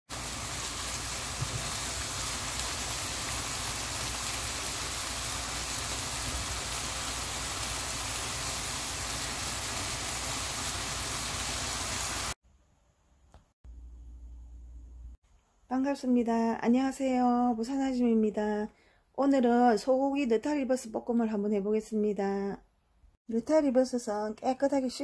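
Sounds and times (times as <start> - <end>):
food sizzling in a wok: 0.1 - 12.4.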